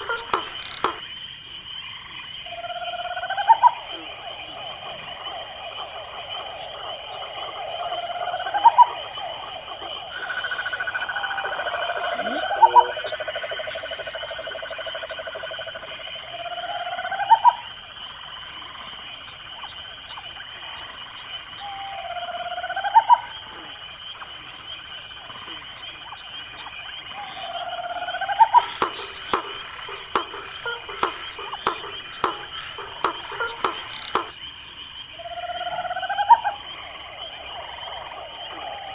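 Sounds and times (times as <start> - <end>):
crickets trilling: 0.0 - 38.9
faint rapid clicks: 28.4 - 34.4.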